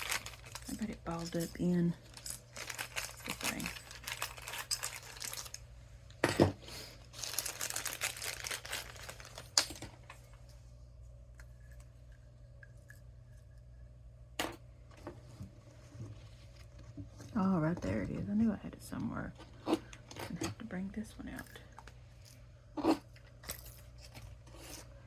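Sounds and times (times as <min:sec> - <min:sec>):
rustling and crinkling materials: 0:00.0 - 0:05.7, 0:06.6 - 0:10.6, 0:15.0 - 0:18.5.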